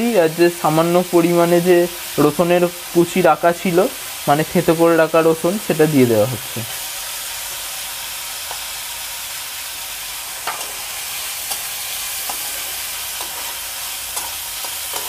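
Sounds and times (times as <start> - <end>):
vegetables sizzling in hot oil: 0.0 - 15.0
metal spatula clicking on pan: 14.1 - 15.0.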